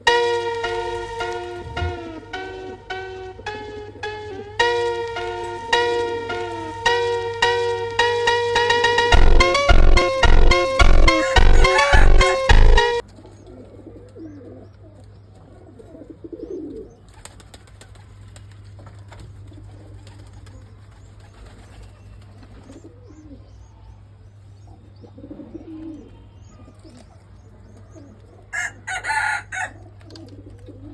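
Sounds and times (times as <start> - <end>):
steady low hum: 1.1 - 4.7, 6.1 - 13.0
pigeons cooing: 11.1 - 12.5, 15.5 - 17.9, 25.0 - 27.2, 27.8 - 30.9.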